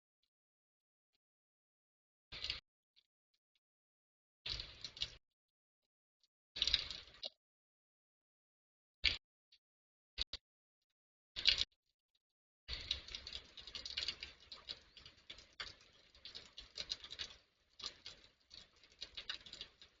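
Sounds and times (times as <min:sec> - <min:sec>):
rain pattering: 0:06.6 - 0:07.3, 0:12.7 - 0:20.0.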